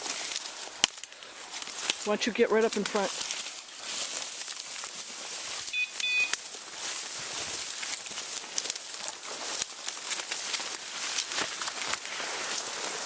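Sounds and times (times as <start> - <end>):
twig snaps: 0.0 - 2.1
footsteps through dry leaves: 0.0 - 13.0.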